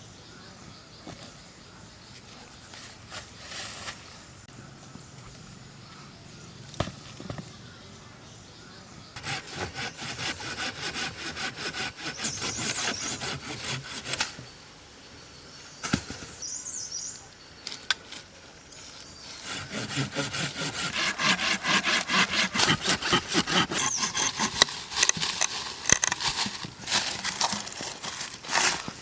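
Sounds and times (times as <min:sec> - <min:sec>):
back-and-forth scraping strokes: 0:09.2 - 0:14.6, 0:18.0 - 0:29.0.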